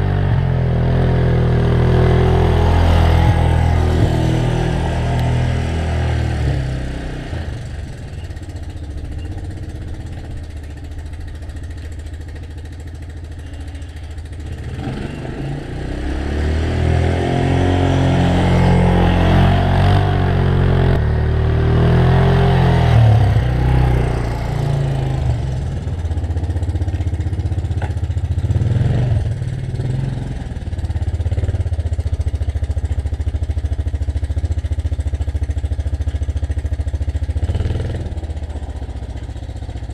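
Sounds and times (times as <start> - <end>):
snowblower engine running: 0.3 - 28.6.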